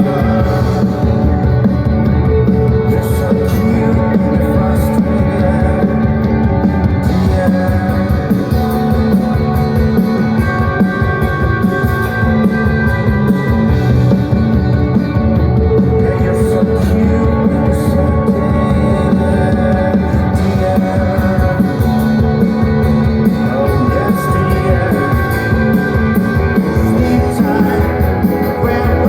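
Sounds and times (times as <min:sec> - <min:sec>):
person singing: 0:00.0 - 0:11.1, 0:15.5 - 0:29.0
bass guitar: 0:00.0 - 0:29.0
drums: 0:00.0 - 0:29.0
electric guitars: 0:00.0 - 0:29.0.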